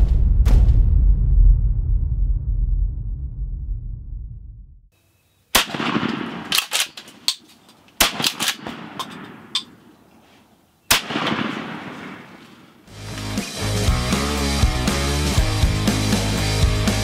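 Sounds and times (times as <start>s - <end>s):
shotgun shots with echo: 5.5s - 7.2s, 8.0s - 9.9s, 10.9s - 12.9s.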